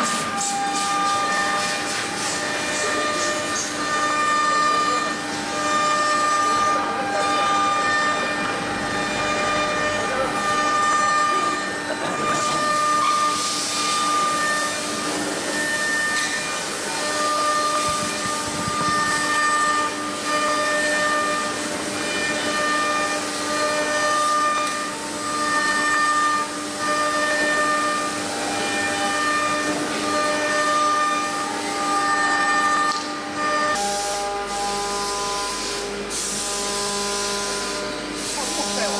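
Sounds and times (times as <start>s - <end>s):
cnc router whining: 0.0s - 38.9s.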